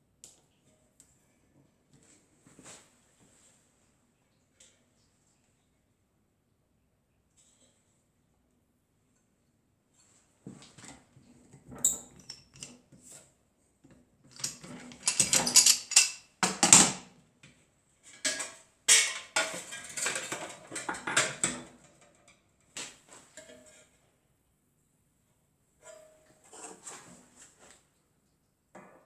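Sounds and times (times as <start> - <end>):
metal scraping and clinking: 14.4 - 16.2.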